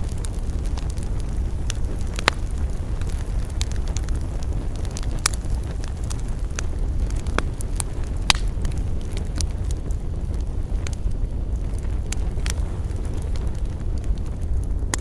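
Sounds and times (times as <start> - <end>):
campfire crackling: 0.0 - 15.0
low rumble: 0.0 - 15.0.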